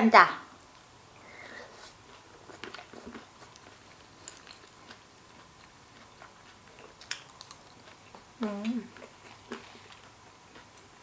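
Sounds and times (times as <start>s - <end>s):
chewing mouth sounds: 1.9s - 10.9s.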